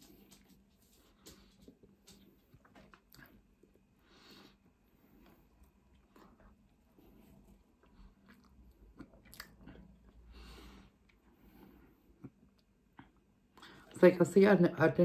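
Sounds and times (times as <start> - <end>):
person chewing: 2.5 - 13.7
wet mouth clicks: 8.3 - 10.0.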